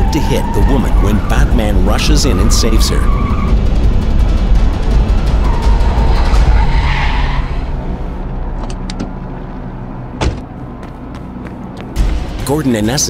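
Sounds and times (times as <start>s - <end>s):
car tyres screeching: 0.0s - 8.6s.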